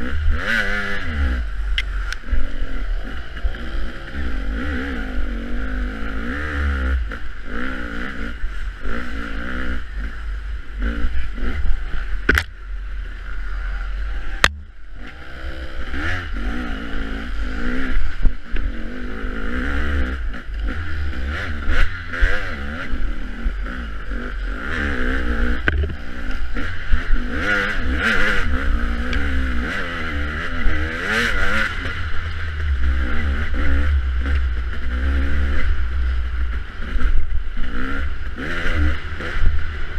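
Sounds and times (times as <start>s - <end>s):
dirt bike engine revving: 0.0s - 39.9s
sharp clicks: 12.2s - 12.6s.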